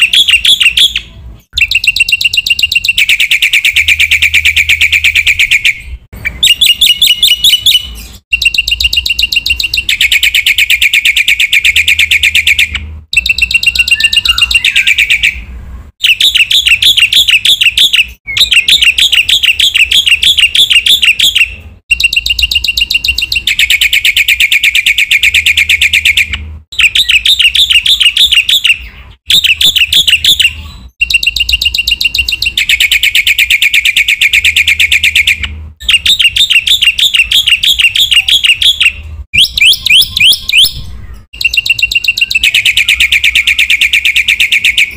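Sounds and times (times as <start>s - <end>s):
starling singing chattering notes: 0.0s - 44.9s.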